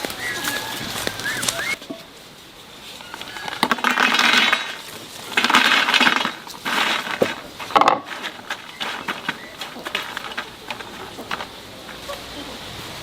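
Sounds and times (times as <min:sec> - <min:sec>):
kitchen items clinking and rattling: 0:02.9 - 0:12.0.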